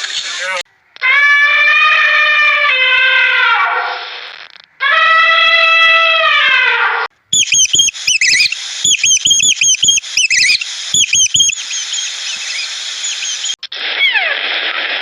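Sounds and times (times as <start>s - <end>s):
small bird chirping: 7.3s - 13.6s
steady hiss: 10.0s - 13.6s.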